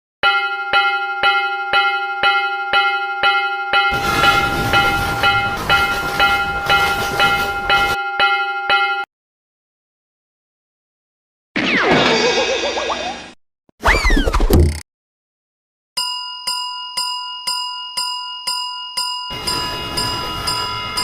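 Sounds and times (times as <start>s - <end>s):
level crossing warning bell: 0.2s - 9.1s, 16.0s - 21.0s
passing train rushing: 3.9s - 8.0s, 19.3s - 21.0s.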